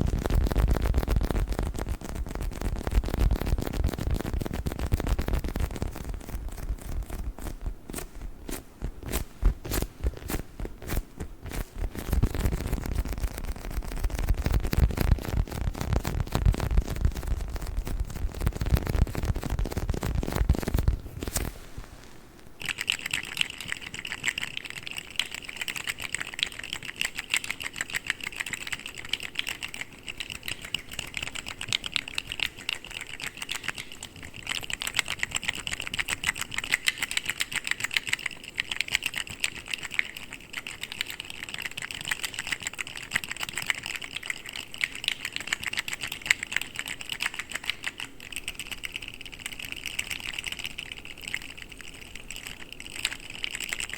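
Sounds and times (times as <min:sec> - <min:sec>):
low squishing sound: 0:00.0 - 0:24.9.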